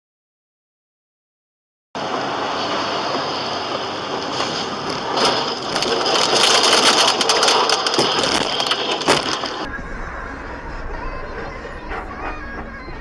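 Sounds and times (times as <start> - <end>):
rain pelting car windshield: 4.2 - 9.7.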